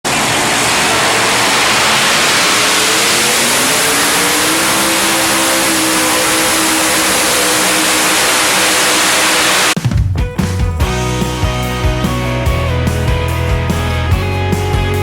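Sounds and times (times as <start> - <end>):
vehicle engine speeding up: 0.0 - 9.8.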